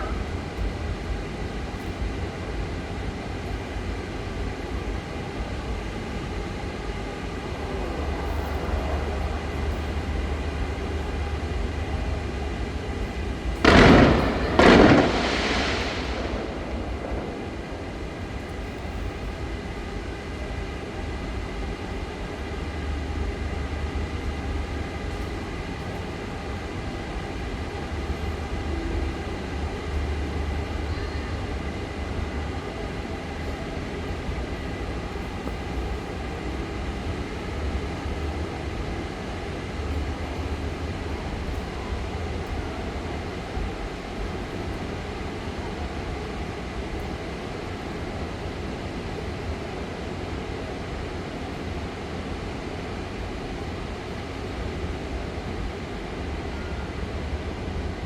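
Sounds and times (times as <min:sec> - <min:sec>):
steady low rumble: 0:00.0 - 0:58.0
firework shell bursting with boom: 0:13.6 - 0:18.7.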